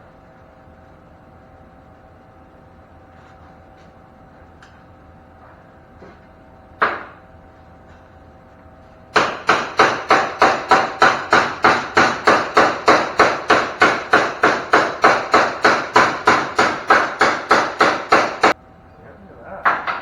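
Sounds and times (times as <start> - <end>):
hammer on sheet steel: 9.2 - 18.6.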